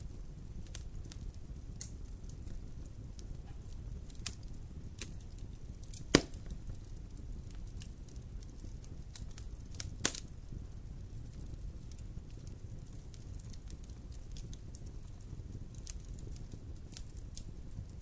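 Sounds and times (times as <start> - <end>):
fire crackling: 0.0 - 18.0
low fire rumble: 0.0 - 18.0
sharp loud pop: 6.1 - 6.4.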